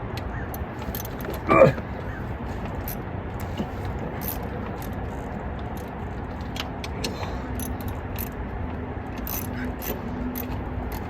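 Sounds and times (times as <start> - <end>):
parts rattling: 0.6 - 5.2, 9.2 - 11.0
metallic clicks of hand tools: 9.2 - 11.0.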